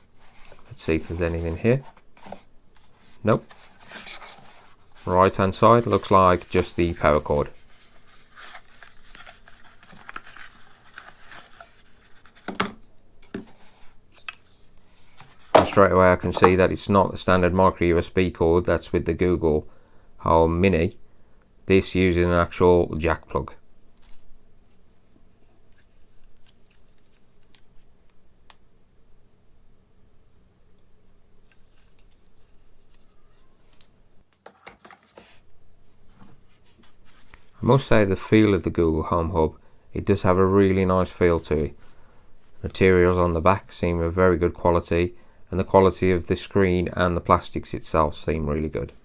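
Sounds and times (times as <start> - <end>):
cardboard rustling and scraping: 0.0 - 16.6, 34.4 - 37.8.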